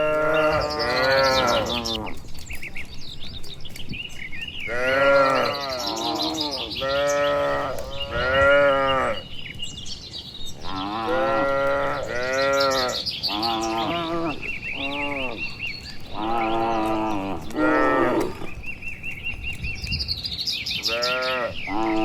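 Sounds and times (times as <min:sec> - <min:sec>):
cattle mooing: 0:00.0 - 0:02.2, 0:04.7 - 0:09.2, 0:10.6 - 0:18.6, 0:20.9 - 0:22.0
birds chirping: 0:00.0 - 0:22.0.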